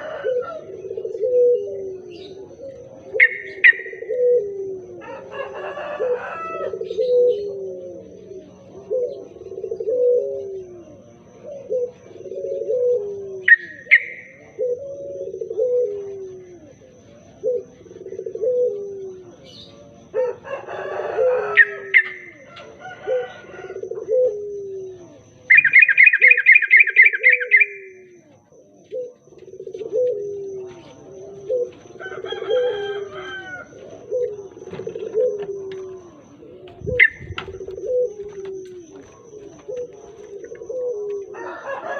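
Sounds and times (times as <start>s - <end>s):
bird cooing calls: 0.0s - 41.9s
sharp higher bird chirps: 25.5s - 28.1s
bright bird trill: 25.5s - 28.2s.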